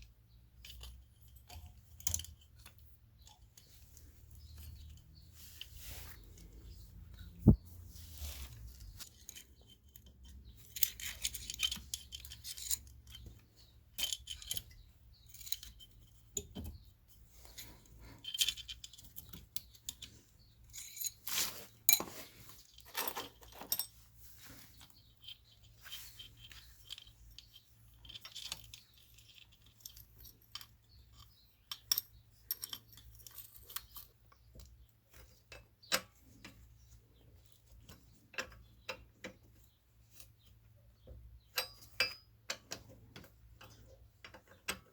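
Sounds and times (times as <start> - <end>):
metal tools clinking and rattling: 8.5 - 36.6.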